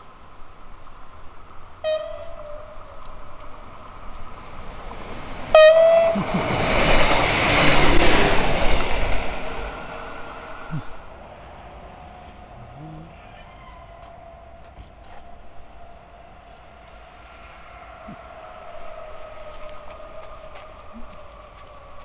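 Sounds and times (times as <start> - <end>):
railcar rumble and rail noise: 0.0 - 22.0
train horn: 1.8 - 3.6, 5.5 - 6.3.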